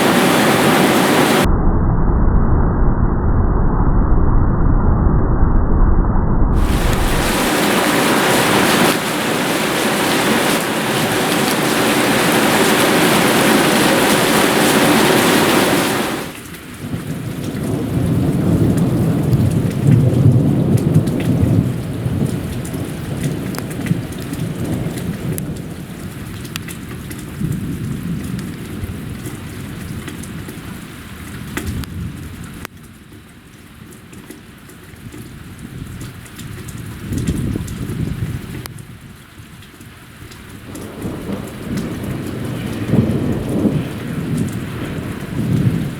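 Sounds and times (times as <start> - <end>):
heavy rain pouring: 0.0 - 1.5, 6.6 - 32.7, 35.2 - 45.9
low roll of thunder: 0.0 - 11.1, 12.2 - 26.4, 40.6 - 45.9.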